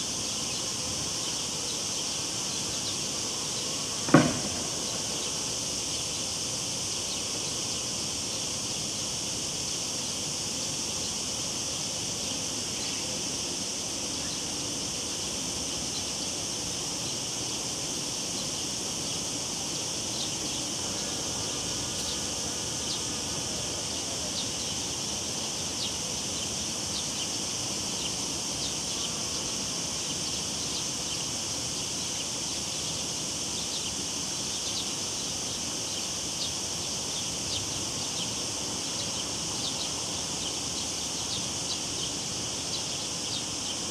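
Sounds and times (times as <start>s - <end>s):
cicadas buzzing: 0.0s - 43.9s.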